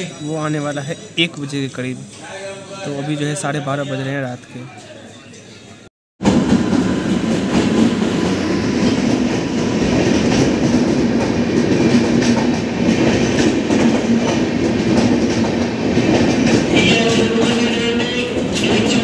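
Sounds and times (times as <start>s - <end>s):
passenger train rumbling past: 6.2s - 19.0s.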